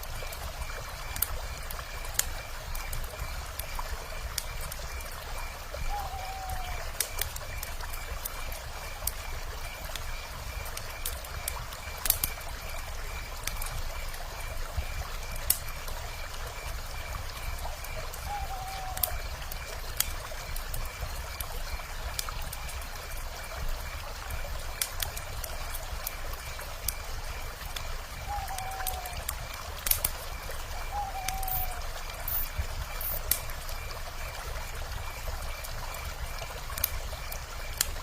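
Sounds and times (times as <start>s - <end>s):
flowing river water: 0.0s - 38.0s
wood fire crackling: 0.0s - 38.0s
owl call: 5.8s - 7.0s, 18.2s - 19.2s, 28.2s - 29.3s, 30.8s - 33.2s.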